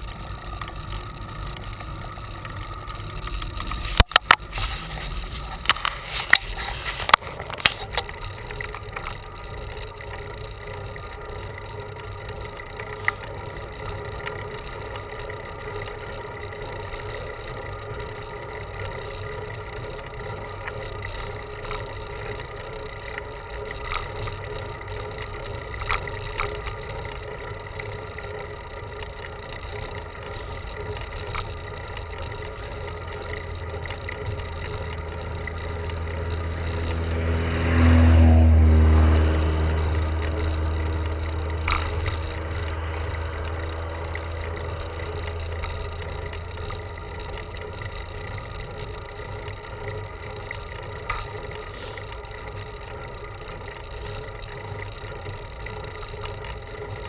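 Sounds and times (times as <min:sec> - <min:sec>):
bicycle tyre and drivetrain noise: 0:00.0 - 0:57.0
low rumble: 0:31.5 - 0:48.6.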